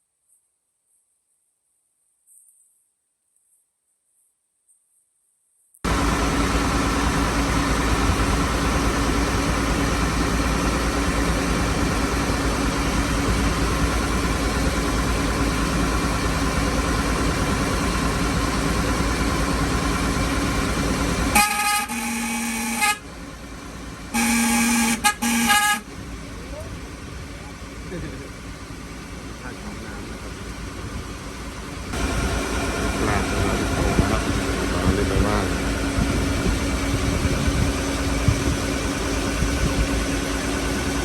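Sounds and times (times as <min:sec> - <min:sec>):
loud engine running: 0:05.9 - 0:41.0
horn blasts: 0:21.2 - 0:23.2, 0:24.1 - 0:26.0.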